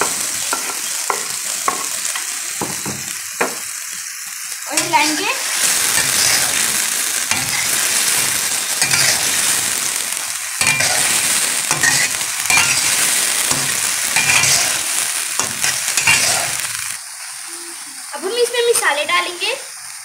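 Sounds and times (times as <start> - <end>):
spatula scraping a pan: 0.0 - 2.3, 4.7 - 6.6, 7.3 - 9.8, 10.6 - 16.7
food sizzling in hot oil: 0.0 - 20.0.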